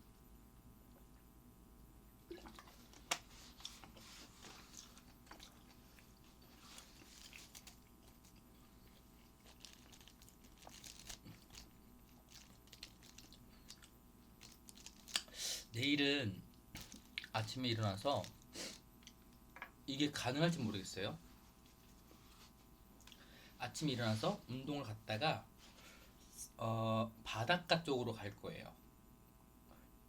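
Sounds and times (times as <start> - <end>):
person chewing: 3.6 - 15.3, 16.8 - 17.4.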